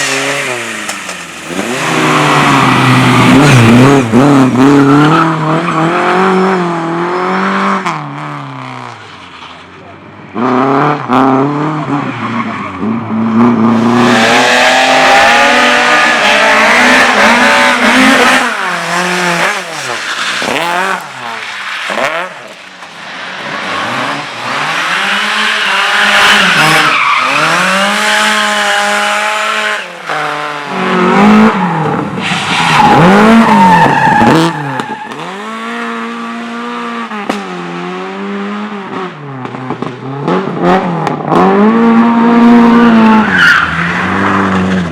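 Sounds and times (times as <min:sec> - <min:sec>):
car engine revving: 0:00.0 - 0:09.1, 0:09.8 - 0:44.9
tyres squealing: 0:16.1 - 0:28.0.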